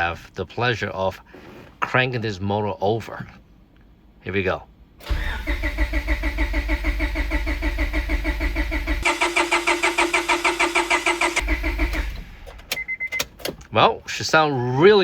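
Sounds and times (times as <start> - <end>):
engine cranking on starter motor: 5.0 - 13.7.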